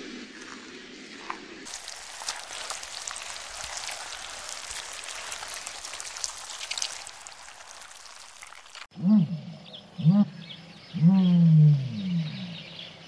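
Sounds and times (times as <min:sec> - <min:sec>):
sea foam fizzing on sand: 0:01.6 - 0:08.9.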